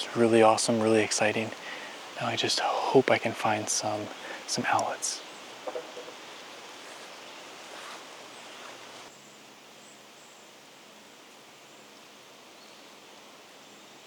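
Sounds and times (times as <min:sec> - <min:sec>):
steady outdoor hiss: 0:00.0 - 0:14.0
rustling: 0:05.6 - 0:09.1.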